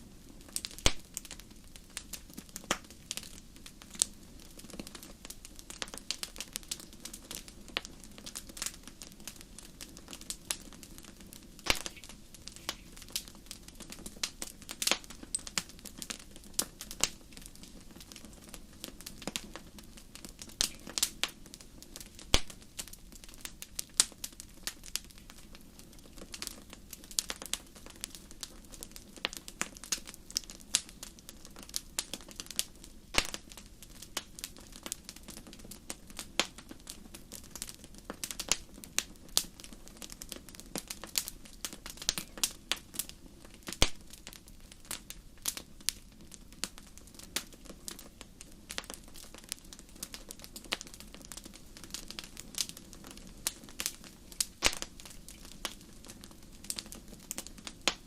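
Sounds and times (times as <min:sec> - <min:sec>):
low rumble of burning logs: 0:00.0 - 0:58.0
wood fire pops and snaps: 0:00.4 - 0:58.0.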